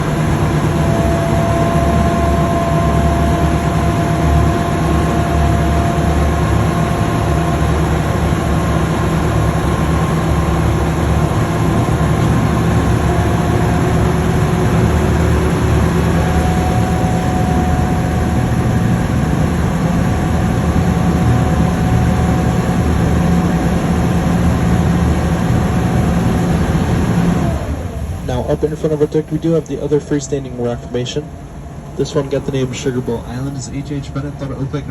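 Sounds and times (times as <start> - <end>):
boat engine humming with whine: 0.0 - 34.9.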